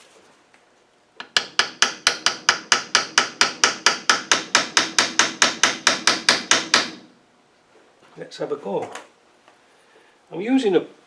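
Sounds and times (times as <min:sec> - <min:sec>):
hammer tapping on metal: 0:01.2 - 0:07.1.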